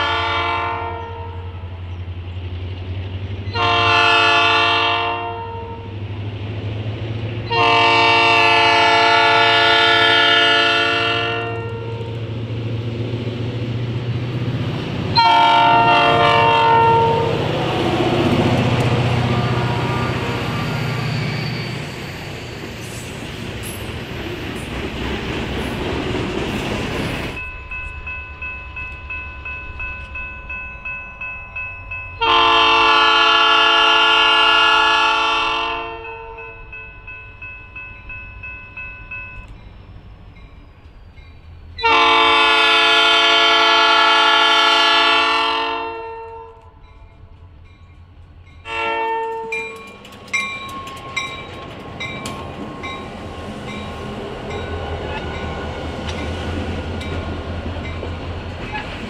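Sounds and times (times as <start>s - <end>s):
locomotive horn blast: 0.0s - 1.8s, 3.5s - 6.0s, 7.4s - 12.2s, 15.1s - 21.9s, 32.2s - 36.5s, 41.8s - 46.8s, 48.7s - 49.9s
train wheels clacking on rails: 11.5s - 32.3s, 46.9s - 59.0s
crossing bell ringing: 15.1s - 22.8s, 27.0s - 45.2s, 46.0s - 59.0s.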